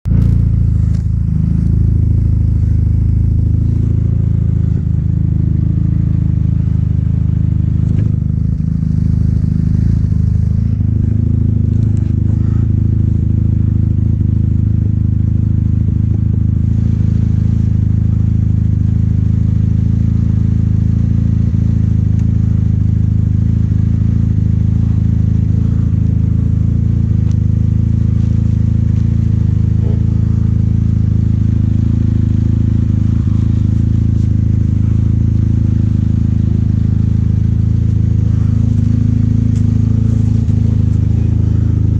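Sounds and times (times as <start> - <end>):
snowmobile engine droning: 0.1 - 41.9.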